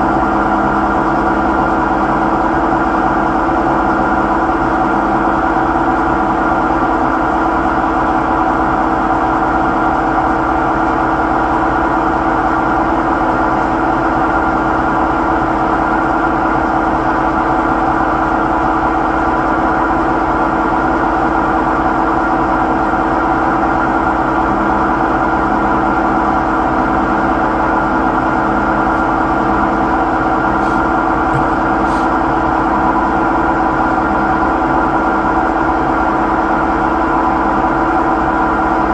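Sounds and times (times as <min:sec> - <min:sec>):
washing machine spinning: 0:14.6 - 0:38.8.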